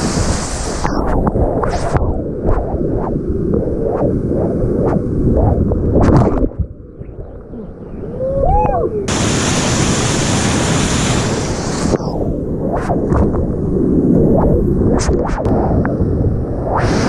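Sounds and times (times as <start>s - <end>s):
whitewater rushing: 9.1s - 12.2s.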